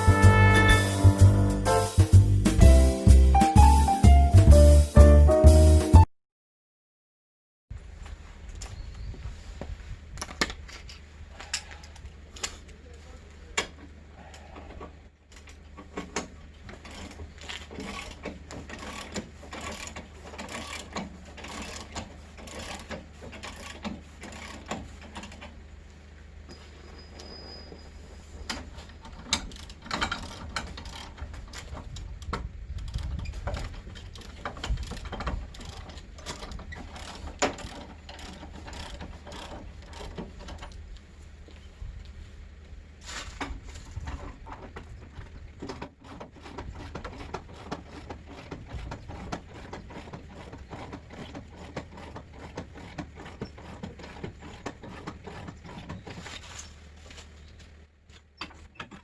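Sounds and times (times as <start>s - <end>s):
jack mechanism ratcheting: 15.4s - 25.4s, 32.7s - 40.8s.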